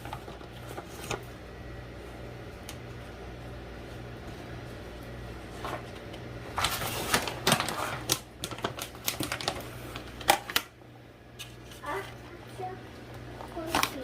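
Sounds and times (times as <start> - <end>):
steady low hum: 0.0 - 14.0
hard objects clicking and clattering: 6.6 - 10.7.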